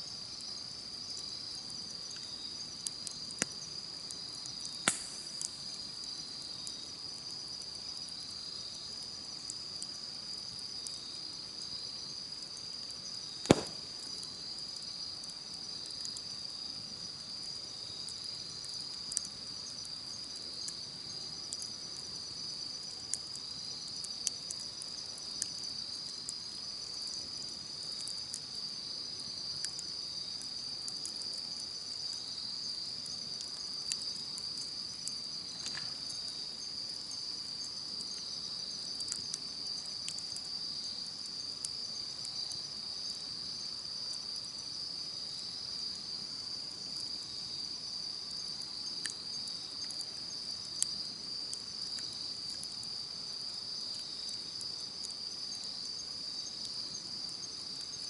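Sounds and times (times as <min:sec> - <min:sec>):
insects trilling: 0:00.0 - 0:58.0
campfire crackling and popping: 0:00.1 - 0:42.8.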